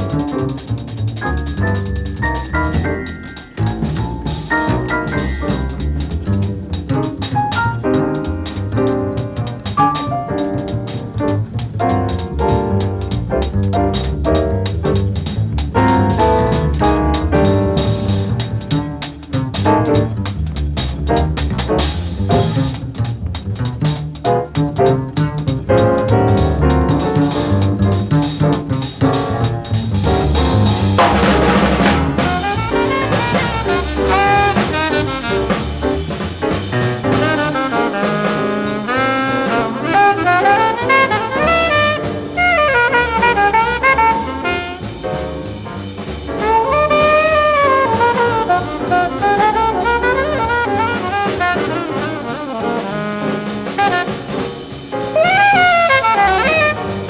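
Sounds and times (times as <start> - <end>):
drum kit: 0.0 - 57.0
jazz combo playing: 0.0 - 57.0
horn playing fast solo: 31.1 - 36.0, 37.1 - 45.0, 46.4 - 54.4, 55.2 - 57.0.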